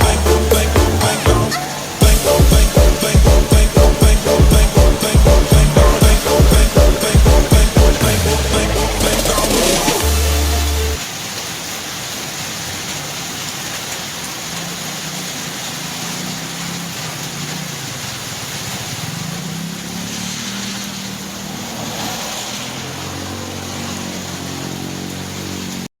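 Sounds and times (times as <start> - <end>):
low engine hum: 0.0 - 11.0
heavy rain hissing: 0.0 - 25.9.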